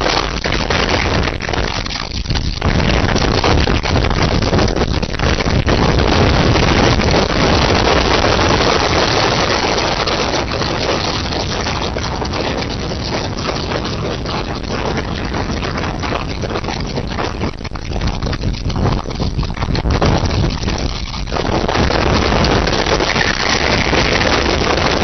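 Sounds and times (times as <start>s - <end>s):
strong wind buffeting microphone: 0.0s - 25.0s.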